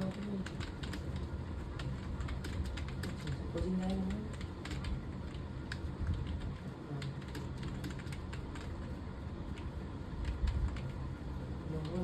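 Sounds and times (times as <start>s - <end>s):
keyboard typing clicks: 0.0s - 8.8s
low background hum: 0.0s - 12.0s.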